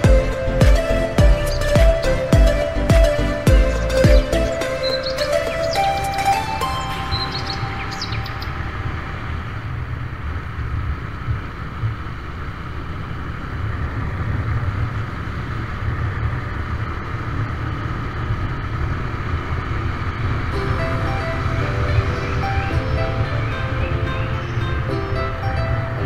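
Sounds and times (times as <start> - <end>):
vehicle engine low rumble: 0.0 - 26.0.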